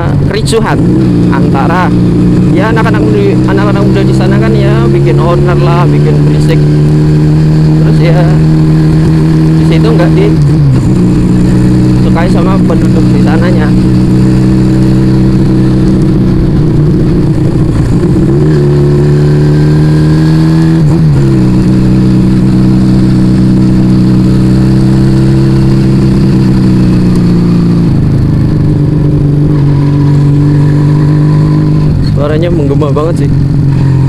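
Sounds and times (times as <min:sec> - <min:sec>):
motorcycle engine while riding: 0:00.0 - 0:34.0.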